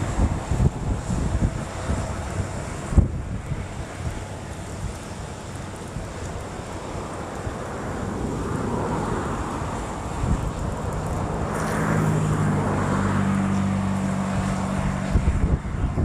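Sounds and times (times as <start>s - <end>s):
waves washing: 0.0s - 16.0s
wind noise on microphone: 0.0s - 16.0s.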